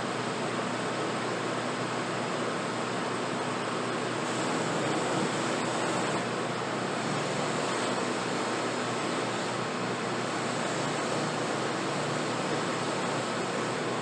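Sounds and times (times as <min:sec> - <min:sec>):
power tool motor running: 0:04.2 - 0:14.0.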